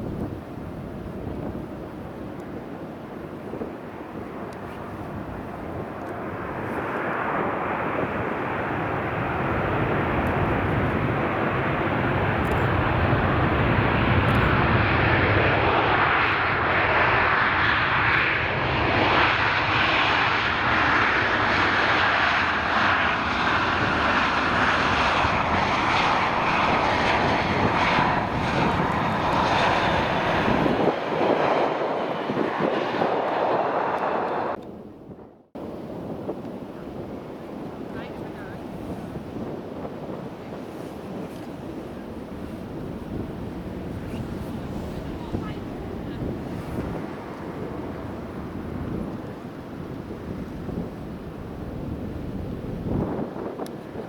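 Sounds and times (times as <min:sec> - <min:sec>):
jet airliner engines passing: 0:00.0 - 0:54.0.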